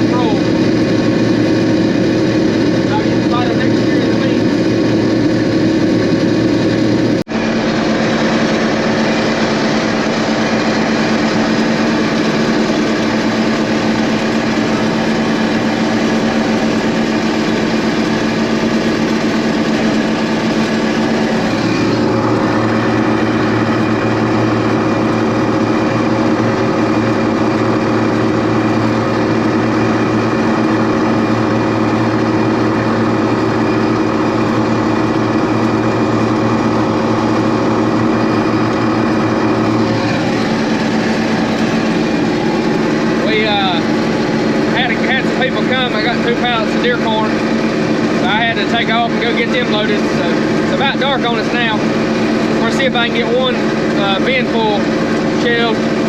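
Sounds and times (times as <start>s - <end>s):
farm machine engine running: 0.0s - 56.0s.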